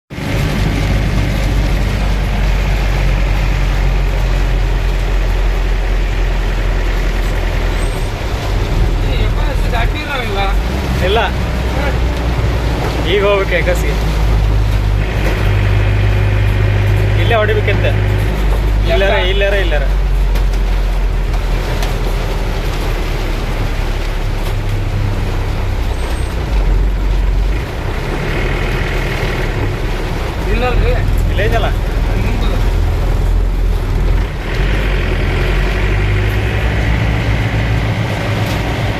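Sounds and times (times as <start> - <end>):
vehicle engine rumbling: 0.0 - 38.9
heavy rain falling: 0.1 - 38.9.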